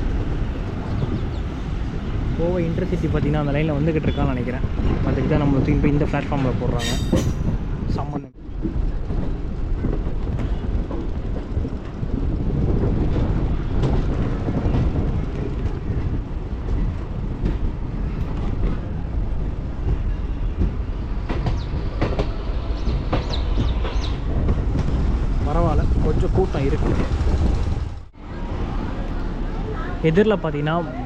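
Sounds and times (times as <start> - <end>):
train rumbling: 0.0 - 31.0
wheels clattering over rail joints: 6.3 - 28.0
metallic squeals: 6.8 - 7.7.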